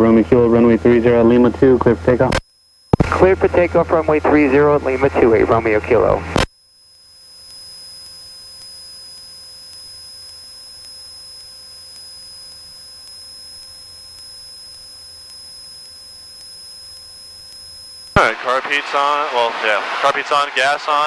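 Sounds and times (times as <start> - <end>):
faint engine drone: 0.0 - 6.5, 7.3 - 21.0
electrical hum with high whine: 0.0 - 21.0.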